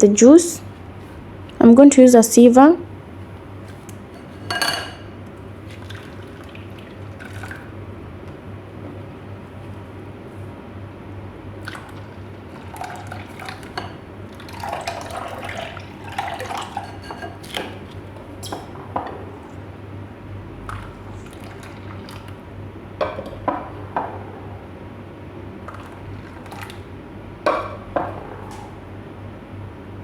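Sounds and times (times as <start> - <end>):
steady low hum: 0.0 - 30.0
kitchenware clinks: 4.2 - 5.1, 16.8 - 17.4
juice pouring through a sieve: 5.5 - 7.8, 11.6 - 18.0, 20.6 - 22.5, 25.6 - 26.9.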